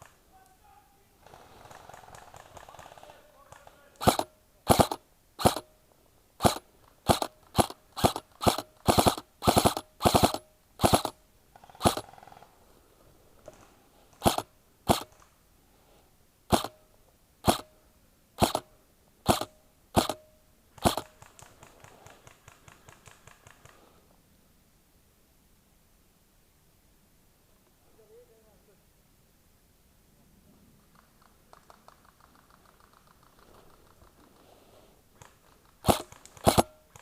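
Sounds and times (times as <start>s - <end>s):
airsoft rifle shots: 1.2s - 5.7s, 6.4s - 12.4s, 14.2s - 15.2s, 16.5s - 17.8s, 18.4s - 23.8s, 35.2s - 37.0s
faint fast ticking: 1.2s - 5.8s, 6.4s - 12.6s, 13.4s - 15.3s, 16.5s - 16.8s, 18.4s - 24.1s, 30.8s - 37.0s.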